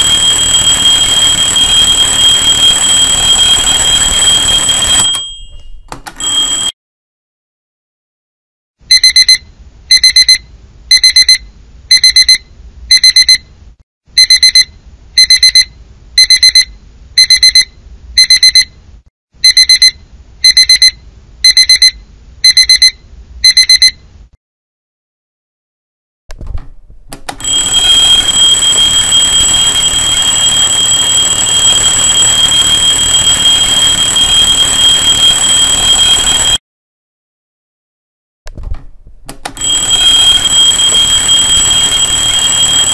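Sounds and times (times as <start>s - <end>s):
digital alarm clock beeping: 0.0s - 5.6s, 8.9s - 13.4s, 14.2s - 18.7s, 19.4s - 24.0s, 27.4s - 36.6s, 39.6s - 42.9s
mechanical alarm clock ringing: 0.0s - 6.7s, 27.4s - 36.6s, 39.6s - 42.9s.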